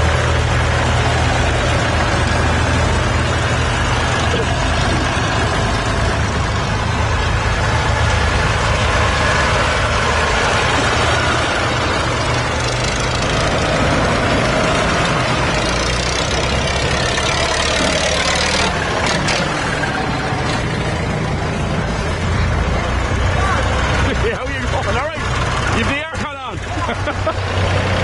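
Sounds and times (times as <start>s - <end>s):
tractor engines running: 0.0s - 28.0s.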